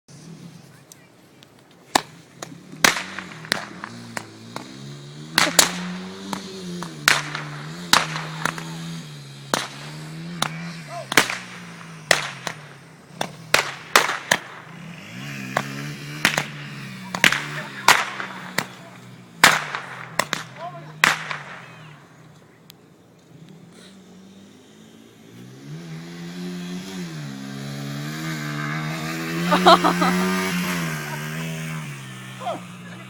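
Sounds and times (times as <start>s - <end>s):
firework rockets cracking: 1.8s - 8.8s, 9.4s - 22.0s
dirt bike engine revving: 2.2s - 22.2s, 23.3s - 33.0s.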